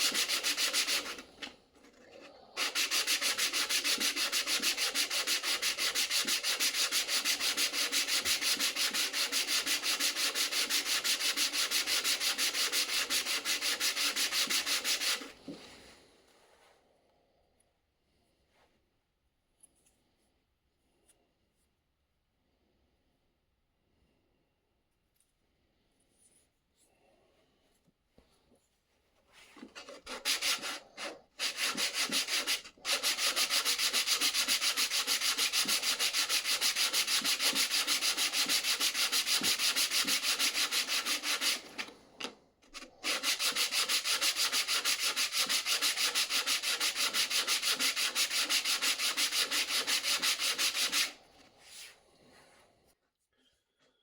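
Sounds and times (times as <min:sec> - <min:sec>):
sandpaper rubbing back and forth: 0:00.0 - 0:01.5, 0:02.6 - 0:15.4, 0:29.6 - 0:41.8, 0:42.7 - 0:52.0.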